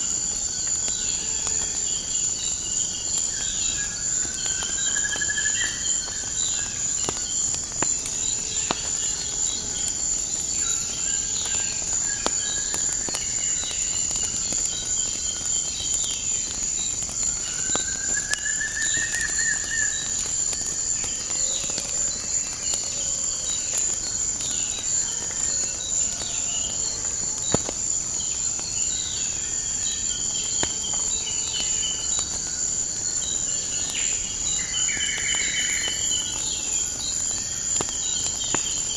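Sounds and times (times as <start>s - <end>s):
high insect trill: 0.0s - 38.9s
wood fire crackling: 0.0s - 38.9s
birds chirping: 35.3s - 38.9s.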